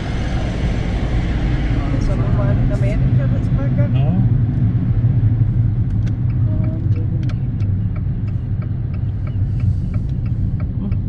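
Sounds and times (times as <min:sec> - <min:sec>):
car engine and tyres rumbling: 0:00.0 - 0:11.0
light even ticking: 0:05.9 - 0:11.0.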